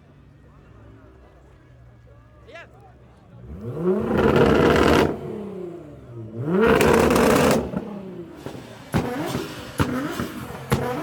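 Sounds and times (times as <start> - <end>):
car engine revving: 3.4 - 11.0.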